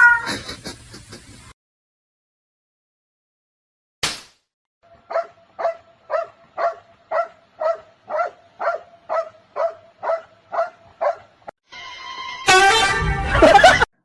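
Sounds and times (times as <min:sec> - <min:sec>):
dog barking: 0:05.0 - 0:11.4.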